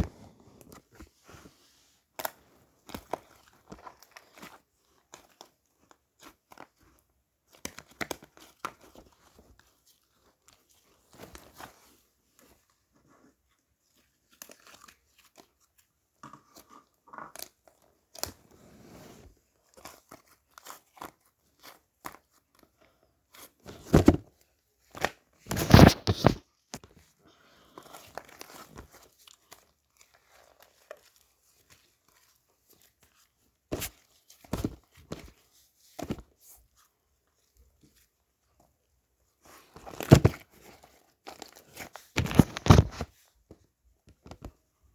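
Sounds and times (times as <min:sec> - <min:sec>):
paper or plastic crinkling: 0:25.5 - 0:26.4, 0:39.5 - 0:43.3.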